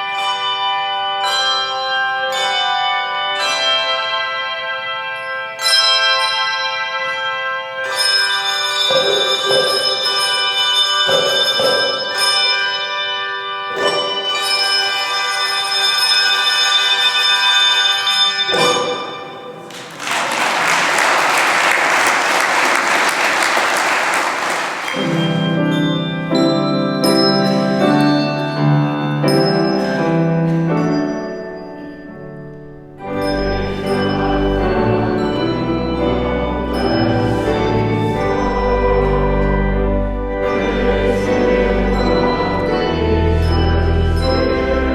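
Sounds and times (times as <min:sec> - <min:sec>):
music with ringing bell chords: 0:00.0 - 0:19.6, 0:24.8 - 0:44.9
organ chord with deep bass: 0:33.2 - 0:44.9.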